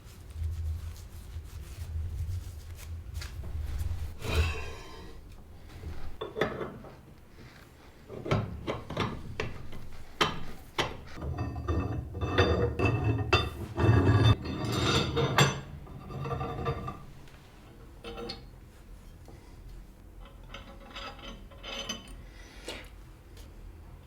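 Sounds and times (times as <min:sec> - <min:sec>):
scraping on metal parts: 0:03.4 - 0:07.0, 0:07.9 - 0:18.5.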